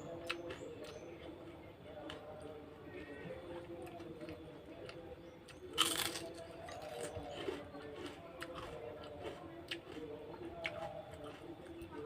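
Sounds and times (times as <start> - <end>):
chewing with crunches: 0.0 - 12.0.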